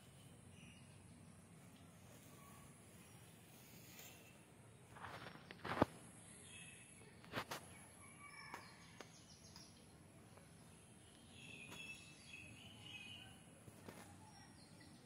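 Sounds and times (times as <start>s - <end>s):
soft bird chirps: 0.0s - 15.0s.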